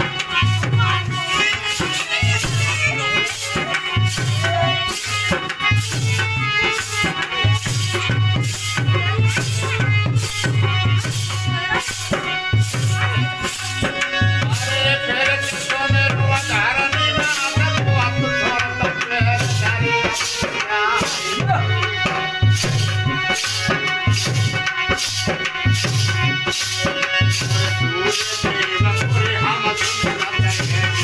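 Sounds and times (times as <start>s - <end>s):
hand drum beat: 0.0s - 31.0s.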